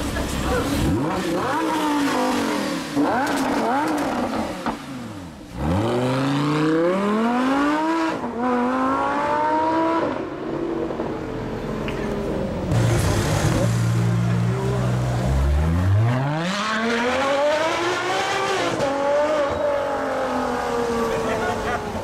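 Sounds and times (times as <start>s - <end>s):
sports car engine revving: 0.6s - 10.5s.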